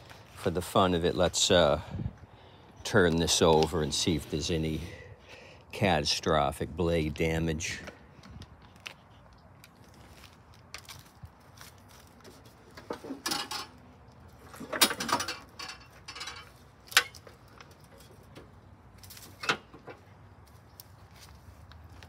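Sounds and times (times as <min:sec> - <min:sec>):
lawn mower clanking and scraping: 0:12.3 - 0:20.2.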